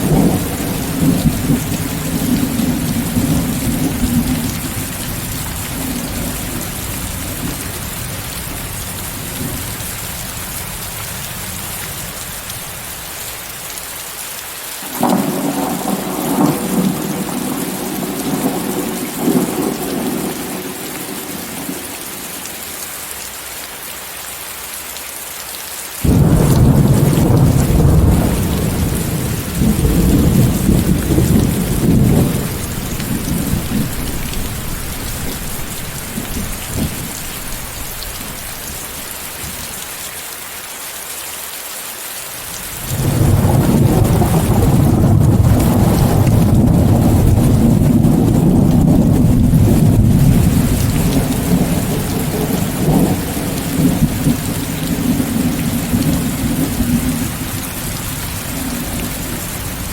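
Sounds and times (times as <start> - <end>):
rolling thunder: 0.0 - 7.9, 14.8 - 21.9, 26.0 - 38.5, 42.8 - 59.9
heavy rain hissing: 0.0 - 59.9.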